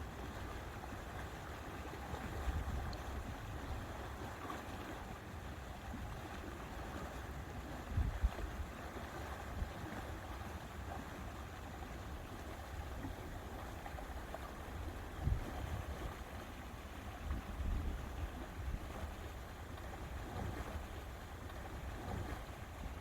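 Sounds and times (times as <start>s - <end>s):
wind and water: 0.0s - 23.0s
wind buffeting microphone: 7.9s - 8.5s, 15.1s - 16.3s, 17.2s - 19.3s.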